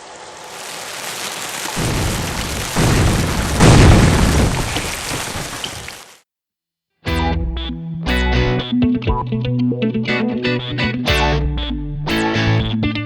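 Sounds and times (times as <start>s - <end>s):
deep booms: 1.8s - 5.6s.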